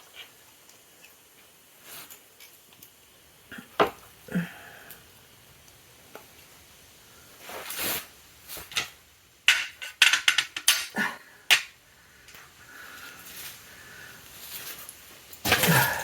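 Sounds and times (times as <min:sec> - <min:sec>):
tools and metal parts clicking: 0:09.5 - 0:11.6.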